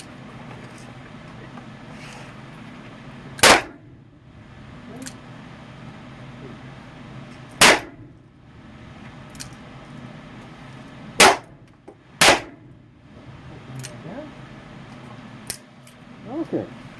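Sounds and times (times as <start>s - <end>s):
loud handgun shots: 3.4s - 3.8s, 7.6s - 8.0s, 11.2s - 11.5s, 12.2s - 12.6s.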